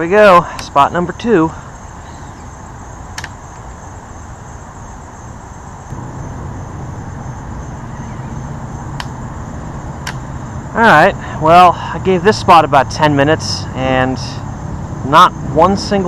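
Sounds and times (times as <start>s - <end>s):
insects trilling: 0.0s - 16.0s
low steady rumble: 5.9s - 16.0s.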